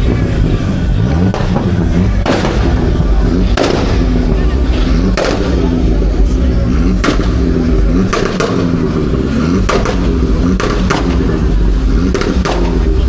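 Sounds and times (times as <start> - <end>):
car engine running loudly: 0.0 - 13.0
exhaust pops: 0.0 - 13.0.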